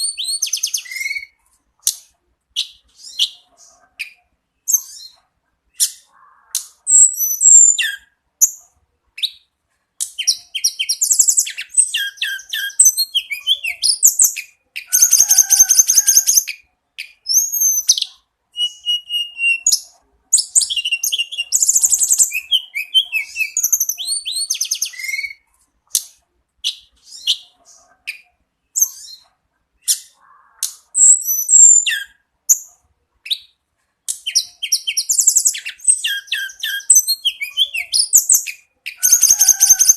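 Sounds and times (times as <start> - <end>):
bird singing trills: 10.2 - 25.4, 34.3 - 39.9.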